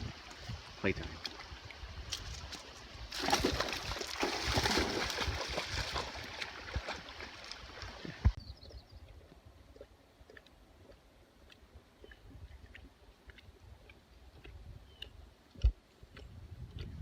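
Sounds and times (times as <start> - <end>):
dog splashing in shallow water: 1.2 - 8.3.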